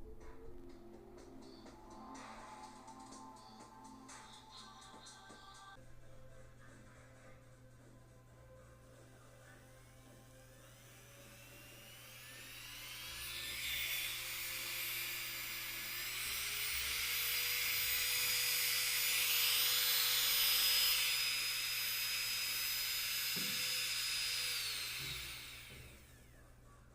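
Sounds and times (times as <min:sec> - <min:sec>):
manicure drill motor whine: 0:08.9 - 0:26.6.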